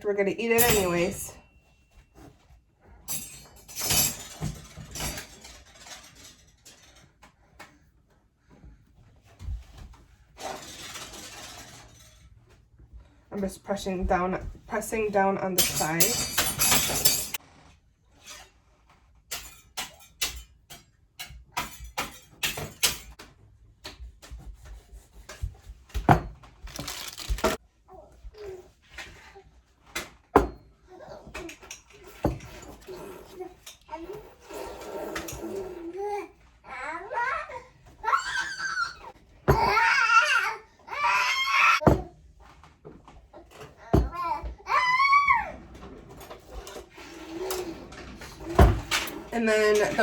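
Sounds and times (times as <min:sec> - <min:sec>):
pastry rustling: 0:26.6 - 0:27.6.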